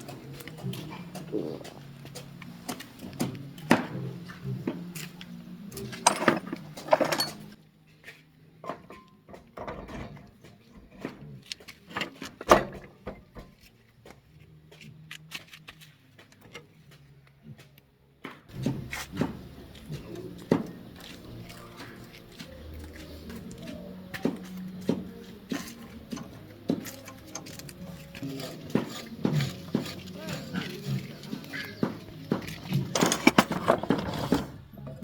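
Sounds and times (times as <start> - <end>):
metal tools clanking: 5.7 - 7.6, 18.5 - 35.0.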